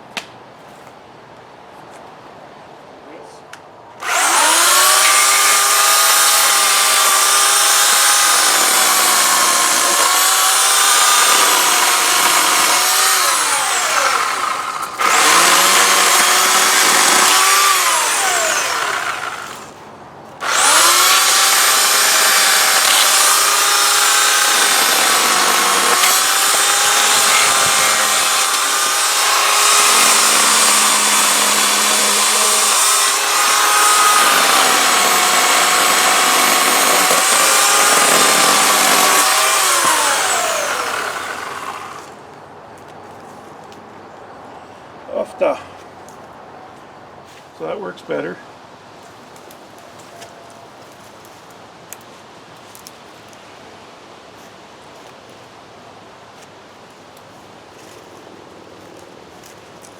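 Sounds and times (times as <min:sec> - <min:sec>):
electric chainsaw cutting wood: 0:04.0 - 0:19.8, 0:20.4 - 0:42.2.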